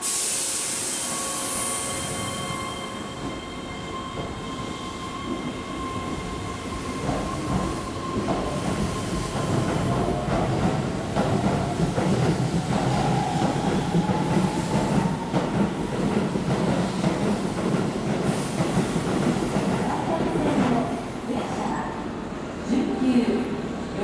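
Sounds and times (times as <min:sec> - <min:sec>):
loud hiss of air: 0:00.0 - 0:02.5
train running with wheel sounds: 0:00.0 - 0:21.3.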